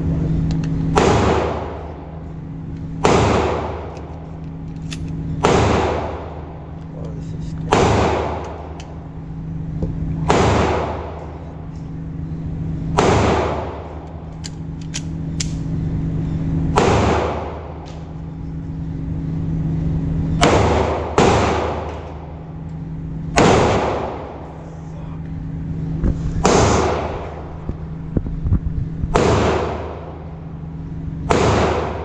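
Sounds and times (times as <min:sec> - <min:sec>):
steady low hum: 0:00.0 - 0:32.0
pistol shots echoing indoors: 0:03.0 - 0:04.0, 0:05.4 - 0:06.4, 0:07.7 - 0:08.8, 0:10.2 - 0:11.4, 0:12.9 - 0:14.0, 0:16.7 - 0:17.8, 0:20.4 - 0:22.3, 0:23.3 - 0:24.4, 0:29.1 - 0:30.3, 0:31.2 - 0:32.0.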